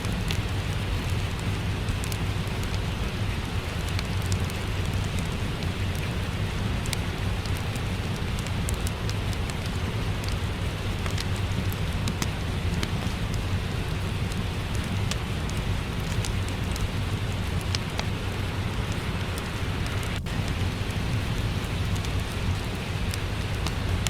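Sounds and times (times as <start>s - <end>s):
steady rain falling: 0.0s - 24.0s
wood fire crackling: 0.0s - 24.0s
low rumble: 11.2s - 24.0s.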